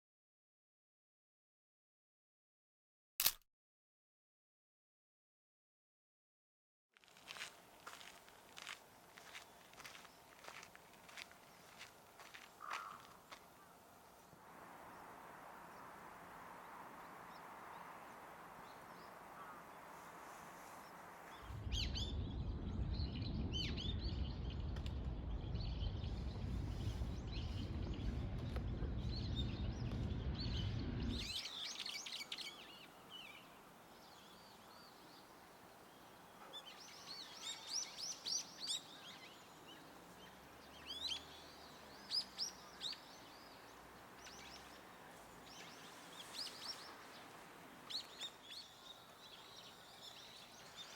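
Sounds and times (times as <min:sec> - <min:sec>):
steady low rumble: 0:21.4 - 0:31.4.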